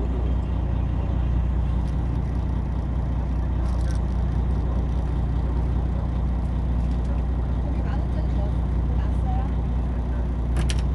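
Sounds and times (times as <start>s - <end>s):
boat engine humming: 0.0s - 10.9s.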